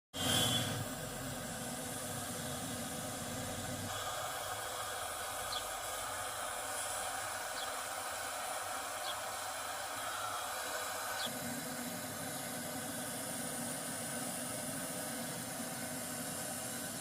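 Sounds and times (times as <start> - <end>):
air conditioner hiss: 0.2 - 17.0.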